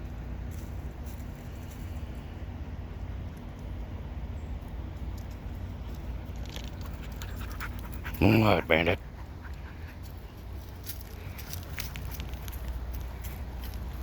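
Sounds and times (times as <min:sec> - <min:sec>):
road rumble: 0:00.0 - 0:14.0.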